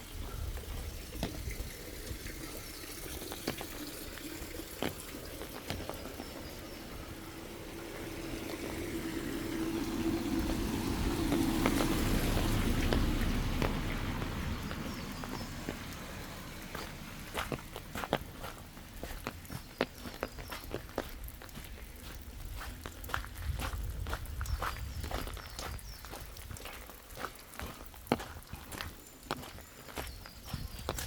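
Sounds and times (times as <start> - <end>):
footsteps on forest path: 0.0 - 31.0
rushing noise with low hum: 5.6 - 26.8.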